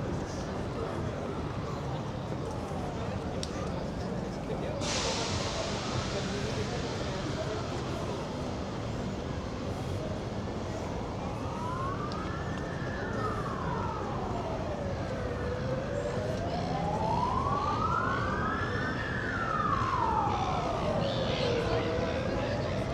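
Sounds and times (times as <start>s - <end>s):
city traffic hum: 0.0s - 22.9s
siren wailing: 10.9s - 22.9s.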